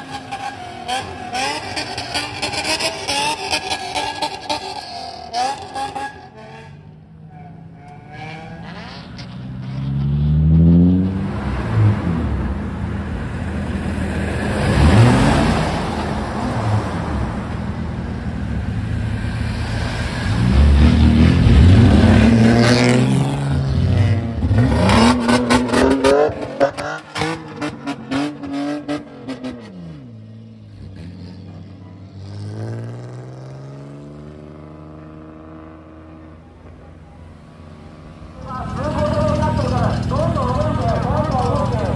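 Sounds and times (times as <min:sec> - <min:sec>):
loud car exhausts revving: 0:00.0 - 0:16.4, 0:18.4 - 0:30.1.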